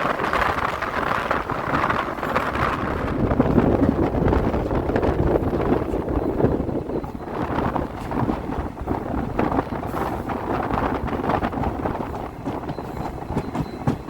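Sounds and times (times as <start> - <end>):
passenger train rumbling on track: 0.0 - 14.0
wind across microphone: 0.0 - 14.0
small clicks of train wheels: 5.7 - 14.0.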